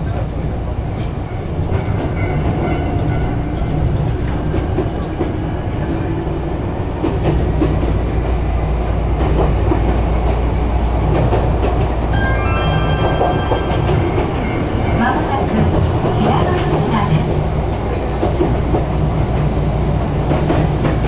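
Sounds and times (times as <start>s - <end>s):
train motors and wheels rumbling: 0.0s - 21.0s.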